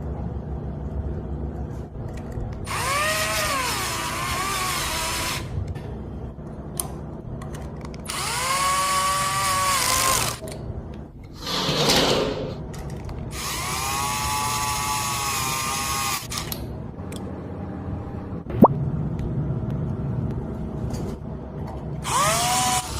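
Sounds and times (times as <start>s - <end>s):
power drill whining: 22.0s - 22.9s.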